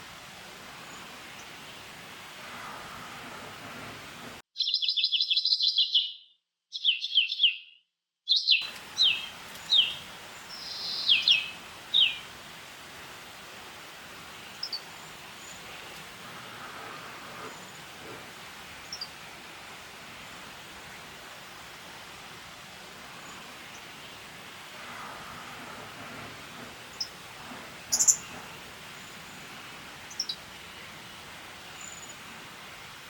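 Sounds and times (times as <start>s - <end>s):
steady background hiss: 0.0s - 4.4s, 8.6s - 33.0s
bird chirping: 4.6s - 12.3s, 14.3s - 16.5s, 26.8s - 31.1s.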